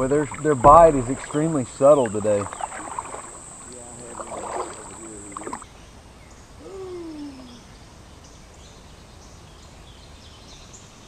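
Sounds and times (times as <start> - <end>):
faint outdoor background: 0.0 - 11.0.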